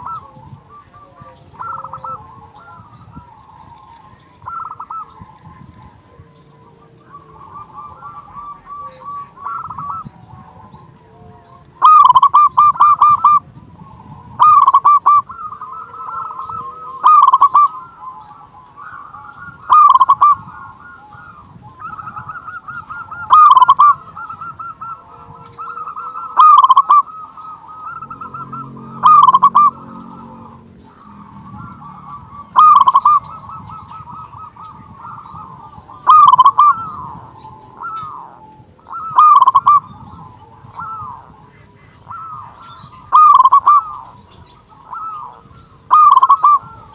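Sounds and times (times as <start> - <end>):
dove cooing loudly: 0.0 - 46.9
soft cooing of doves: 0.0 - 46.9.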